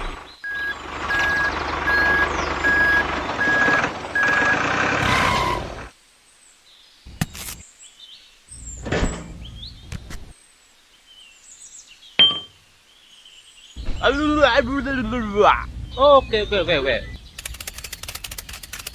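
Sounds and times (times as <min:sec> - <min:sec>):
reversing alarm beeping: 0:00.4 - 0:05.8
loud rumbling noise: 0:13.8 - 0:17.4.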